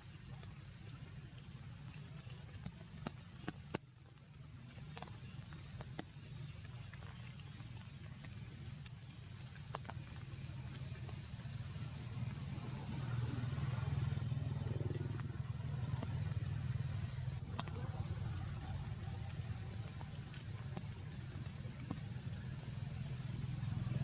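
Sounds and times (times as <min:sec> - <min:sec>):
sharp drips: 0:00.0 - 0:24.0
rain falling: 0:08.8 - 0:24.0.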